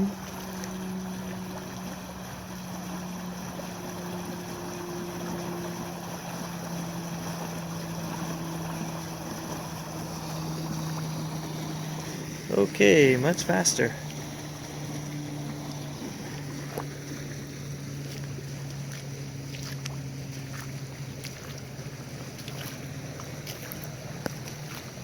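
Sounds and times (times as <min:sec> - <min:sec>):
steady low hum: 0:00.0 - 0:25.0
water flowing: 0:00.0 - 0:25.0.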